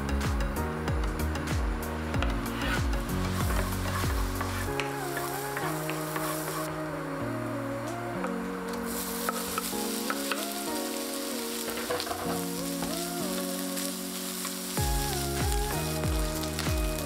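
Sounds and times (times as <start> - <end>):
background music with bass beat: 0.0 - 6.9, 14.8 - 17.0
bacon sizzling in frying pan: 8.8 - 17.0
wooden spatula stirring: 11.5 - 14.6.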